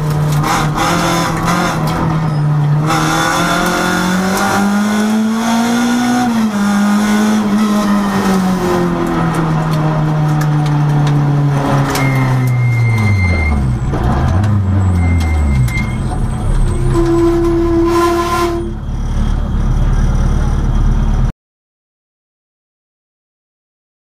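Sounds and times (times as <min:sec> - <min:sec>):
rally car engine from inside cabin: 0:00.0 - 0:21.3
held tone: 0:11.9 - 0:14.0.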